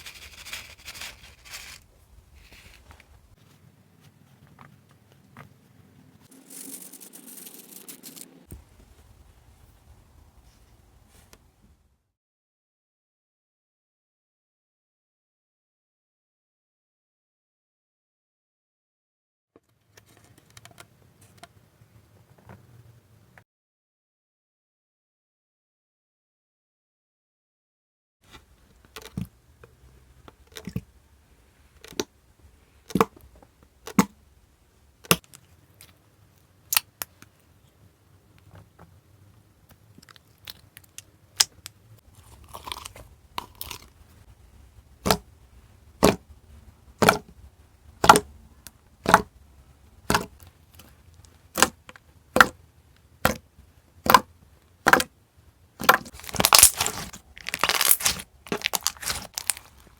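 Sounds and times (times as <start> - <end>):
slime squeezed by hand popping: 56.1 - 59.6.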